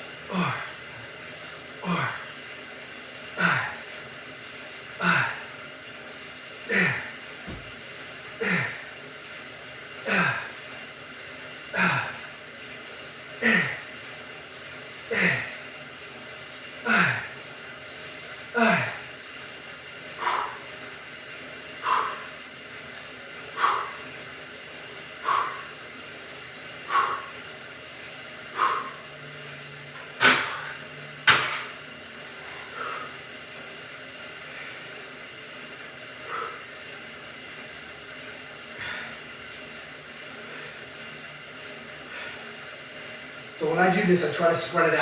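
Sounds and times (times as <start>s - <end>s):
steady hiss: 0.0s - 45.0s
man breathing forcefully: 0.2s - 0.9s, 5.0s - 5.6s, 6.7s - 9.0s, 10.0s - 10.7s, 11.7s - 12.4s, 15.0s - 15.6s, 20.0s - 22.6s, 23.2s - 29.2s, 30.0s - 31.7s, 32.3s - 33.3s, 36.1s - 36.8s, 38.7s - 39.3s, 42.0s - 42.6s.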